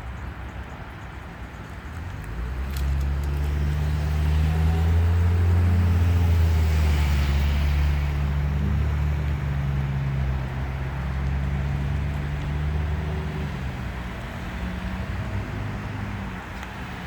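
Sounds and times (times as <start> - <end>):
road noise: 0.0 - 17.0
vehicle engine hum: 0.0 - 17.0.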